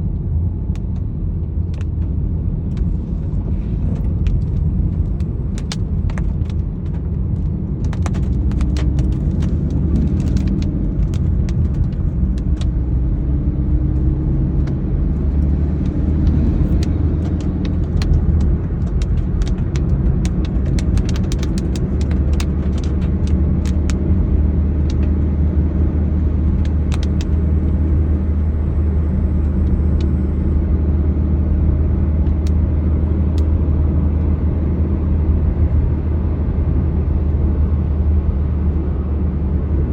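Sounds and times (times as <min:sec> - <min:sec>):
vehicle rumble: 0:00.0 - 0:39.9
raindrops tapping: 0:05.6 - 0:12.9, 0:15.3 - 0:25.1, 0:26.5 - 0:27.4.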